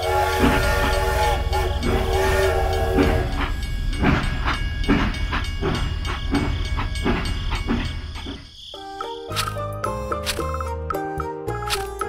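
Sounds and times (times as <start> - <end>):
toy train whistle: 0.0 - 3.7
toy train chuffing: 0.0 - 8.5.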